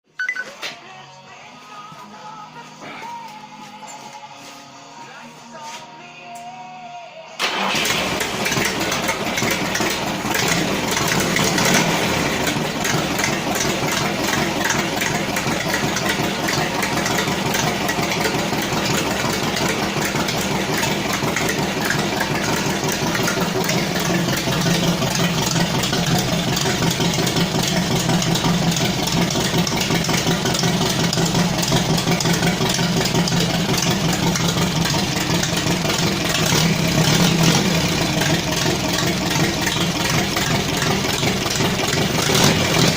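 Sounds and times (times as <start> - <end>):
small engine running: 7.5 - 30.2.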